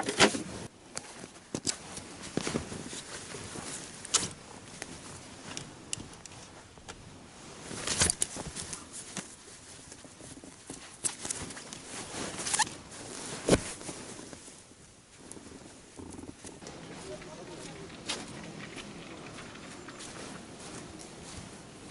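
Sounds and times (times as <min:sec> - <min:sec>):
rustling and small clicks: 0:07.7 - 0:14.5.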